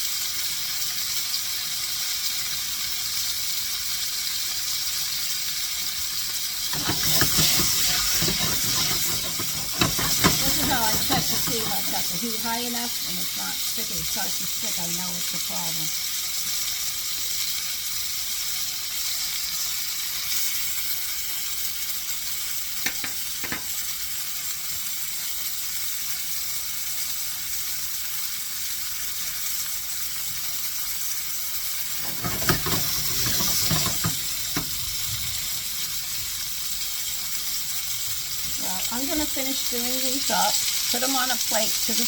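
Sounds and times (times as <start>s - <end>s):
chicken sizzling in oil: 0.0s - 42.0s
knocks and scraping in pan: 6.6s - 12.8s, 22.8s - 23.7s, 31.9s - 35.1s.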